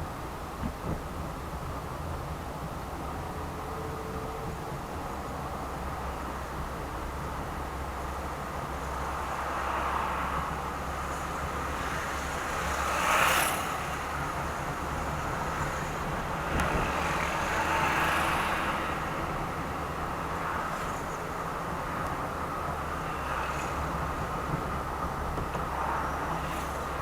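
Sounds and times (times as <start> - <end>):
car engine and road noise: 0.0 - 27.0
passing vehicle whoosh: 15.2 - 22.0.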